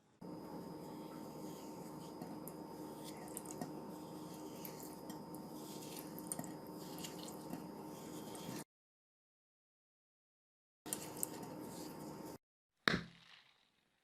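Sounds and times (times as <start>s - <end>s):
faint steady hum: 0.0s - 8.6s, 10.9s - 12.4s.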